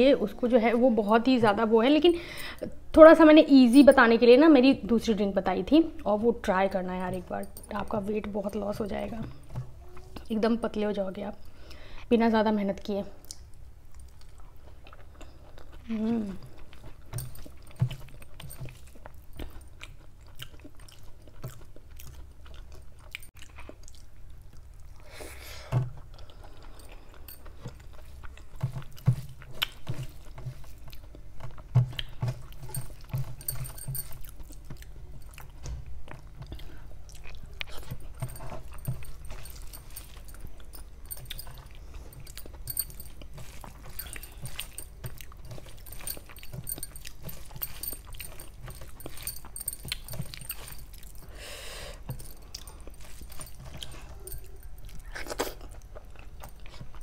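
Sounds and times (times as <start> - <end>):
person chewing: 13.2 - 57.0.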